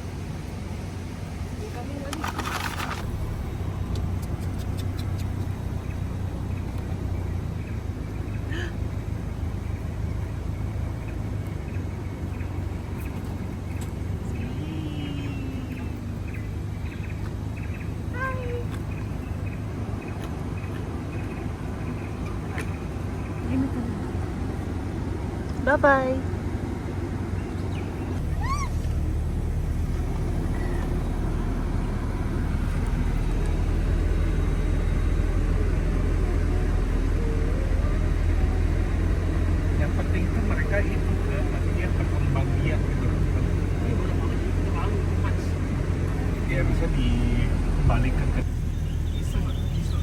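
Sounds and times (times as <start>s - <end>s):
car engine running: 0.0s - 50.0s
faint falling call: 28.2s - 31.2s
short rising chirp: 28.2s - 36.1s.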